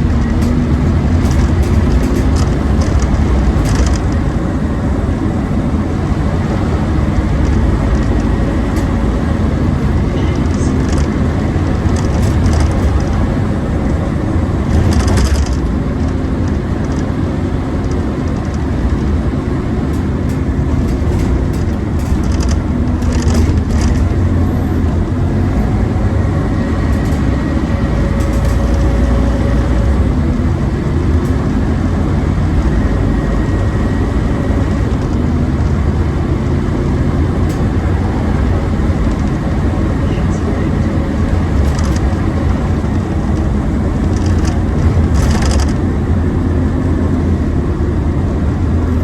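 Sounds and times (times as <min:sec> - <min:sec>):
bus engine drone: 0:00.0 - 0:49.0
clicks and rattles: 0:00.1 - 0:04.2, 0:19.9 - 0:24.3, 0:26.8 - 0:29.2, 0:44.1 - 0:45.8.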